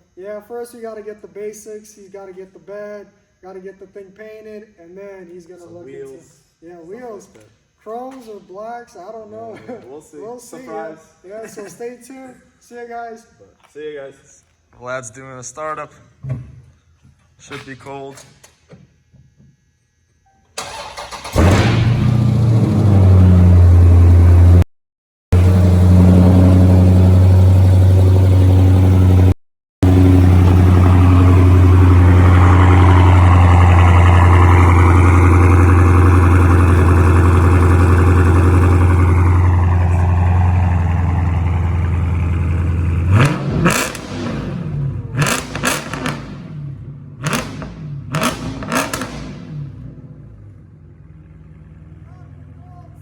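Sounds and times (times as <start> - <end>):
car engine idling and revving: 21.0 - 24.6, 25.3 - 53.0.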